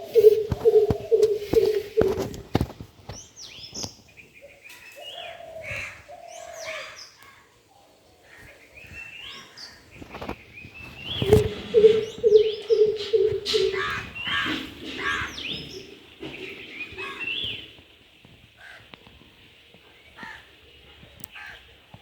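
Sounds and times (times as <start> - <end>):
small birds chirping: 0.0 - 22.0
deep booming bird hoots: 11.2 - 17.2.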